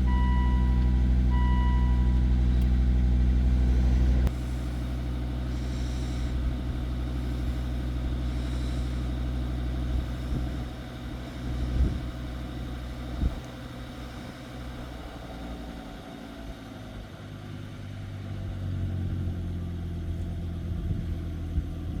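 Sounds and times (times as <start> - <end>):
car engine idling: 0.0 - 22.0
engine knocks: 1.1 - 16.9.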